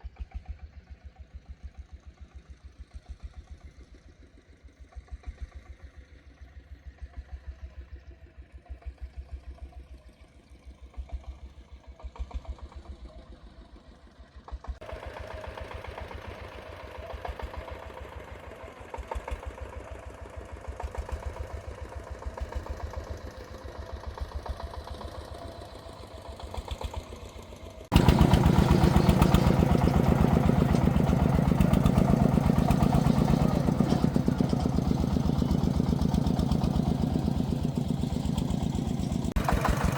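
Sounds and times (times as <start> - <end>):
single-cylinder diesel engine running: 10.4 - 39.9.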